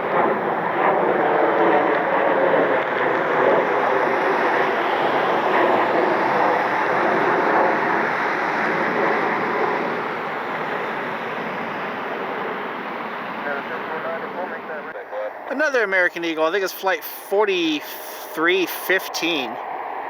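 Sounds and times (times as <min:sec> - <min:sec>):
jet engines at takeoff: 0:00.0 - 0:20.0.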